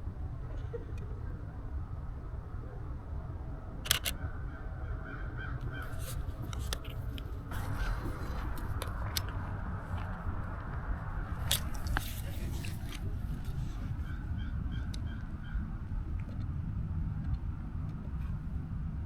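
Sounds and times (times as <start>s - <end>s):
steady low rumble: 0.0s - 19.0s
camera shutter clicking: 3.8s - 4.2s
crows cawing: 4.2s - 10.2s.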